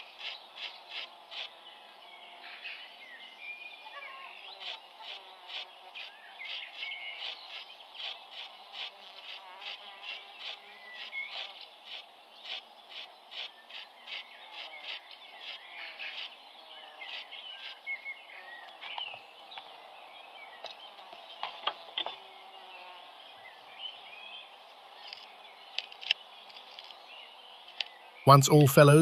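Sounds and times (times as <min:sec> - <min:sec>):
bird calls: 0:00.0 - 0:29.0
insects chirping: 0:04.0 - 0:20.0.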